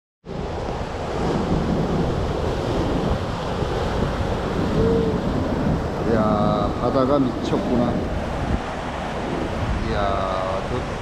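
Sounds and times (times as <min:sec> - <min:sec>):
wind rumbling on microphone: 0:00.2 - 0:11.0
sea surf breaking on beach: 0:00.3 - 0:11.0.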